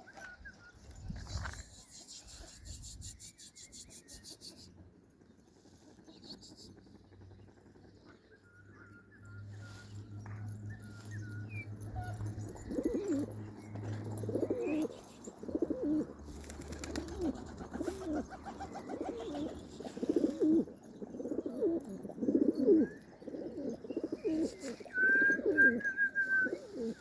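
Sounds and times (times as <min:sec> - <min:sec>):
pigeons cooing: 0:11.6 - 0:27.0.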